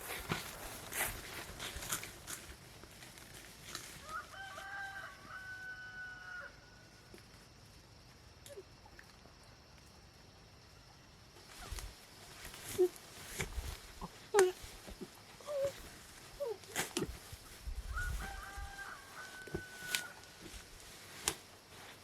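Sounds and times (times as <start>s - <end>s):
rooster crowing: 4.0s - 6.8s, 17.9s - 20.6s.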